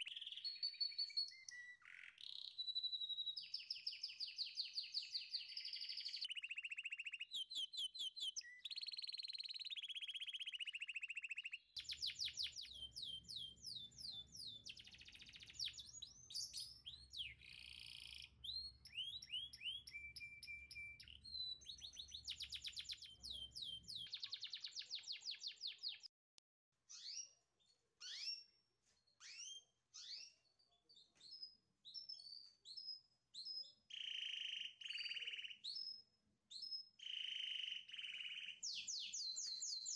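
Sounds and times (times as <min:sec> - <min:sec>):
birds trilling and chirping: 0:04.8 - 0:26.0.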